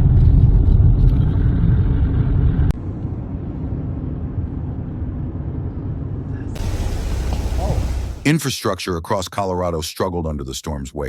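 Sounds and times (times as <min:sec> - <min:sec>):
low rumbling noise: 0:00.2 - 0:08.4.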